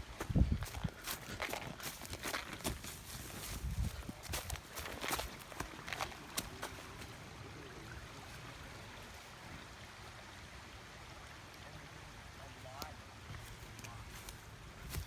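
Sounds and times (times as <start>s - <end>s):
creek water running over rocks: 0.0s - 15.0s.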